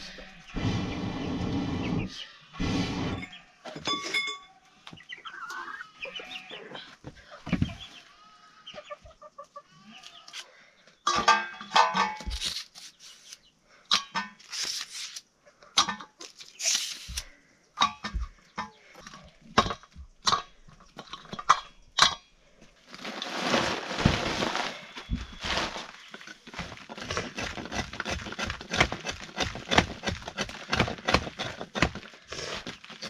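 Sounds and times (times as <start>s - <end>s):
birds calling: 0.0s - 3.7s, 4.7s - 11.2s.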